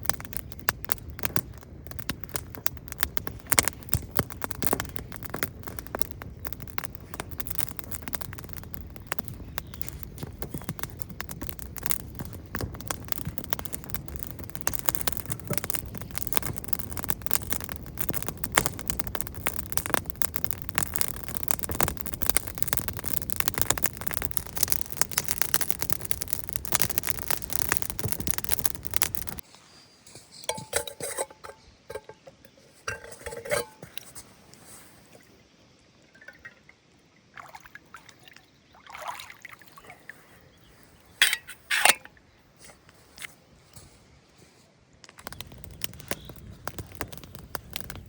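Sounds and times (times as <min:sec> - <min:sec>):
dense crackling: 0:00.0 - 0:29.4, 0:45.1 - 0:48.0
liquid being poured: 0:36.1 - 0:36.8.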